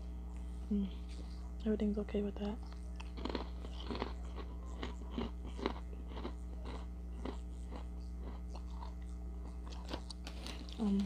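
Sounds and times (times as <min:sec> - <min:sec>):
person chewing crunchy chips: 0:02.7 - 0:11.0.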